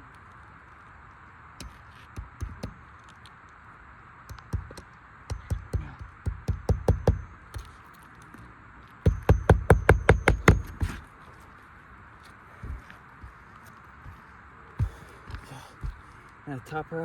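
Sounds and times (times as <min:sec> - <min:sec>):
hammer striking roofing nails: 0:01.6 - 0:02.8, 0:04.3 - 0:07.7, 0:09.0 - 0:11.0.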